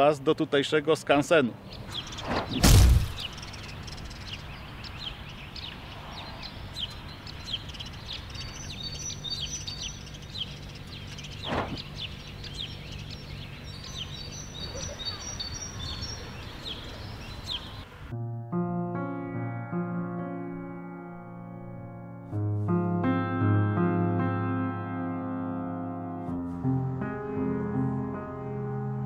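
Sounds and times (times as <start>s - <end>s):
small birds chirping: 0.0s - 18.1s
sharp knock: 2.2s - 3.4s.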